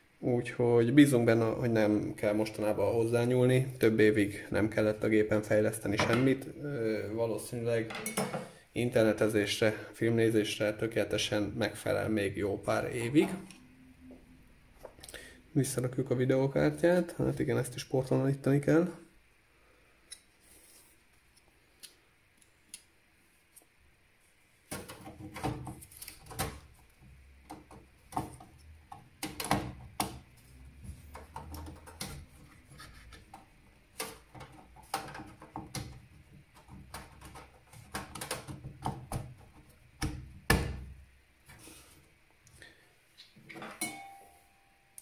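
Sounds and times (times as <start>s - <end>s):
computer hardware clicks and knocks: 7.9s - 8.5s, 27.4s - 30.3s, 31.0s - 32.4s, 33.2s - 40.9s.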